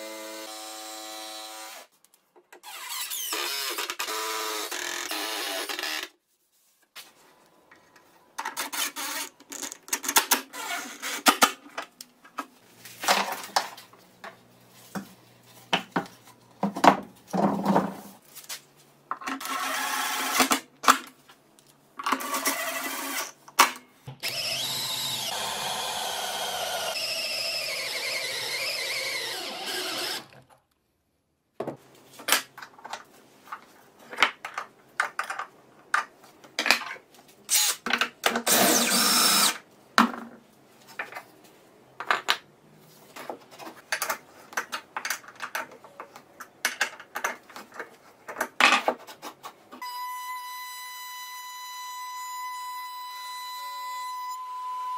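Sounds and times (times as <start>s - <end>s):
power tool motor running: 24.2s - 30.3s, 38.5s - 39.6s.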